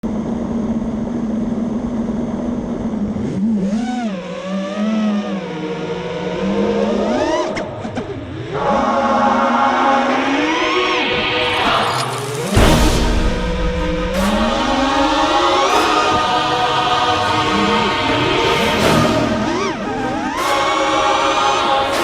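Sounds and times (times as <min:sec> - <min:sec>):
drone motors whining: 0:00.1 - 0:09.6.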